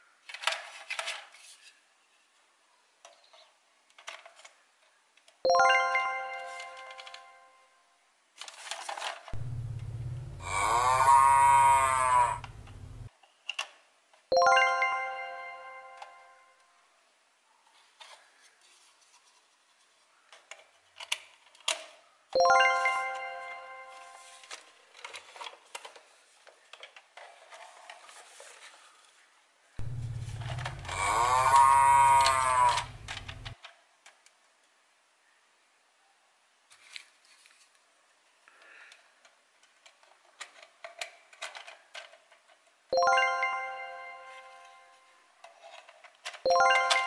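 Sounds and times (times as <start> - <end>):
plastic toy parts clicking: 0.2 - 1.5, 3.0 - 4.6, 8.4 - 13.8, 20.3 - 22.0, 24.4 - 28.5, 29.8 - 34.4, 38.9 - 42.8, 45.4 - 47.0
bright chime ringing: 14.4 - 16.5, 22.4 - 24.2, 43.0 - 44.9, 46.5 - 47.0
plastic toy pieces clicking: 30.0 - 34.4, 39.2 - 42.7, 45.4 - 47.0.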